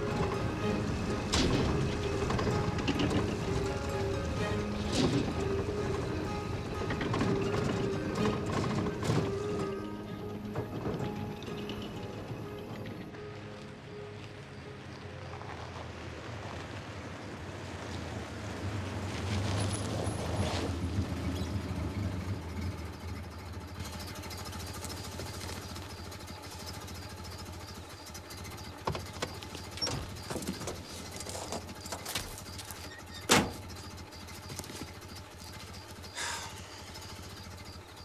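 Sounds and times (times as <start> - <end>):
knocks and clunks: 0.0 - 13.2, 28.4 - 35.7
car engine running: 0.0 - 38.0.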